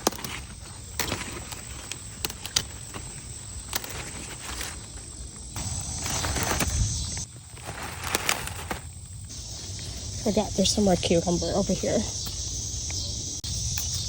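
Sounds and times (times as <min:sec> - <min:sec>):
leaves snapping: 0:00.0 - 0:09.5
leaf rustling: 0:00.0 - 0:12.6.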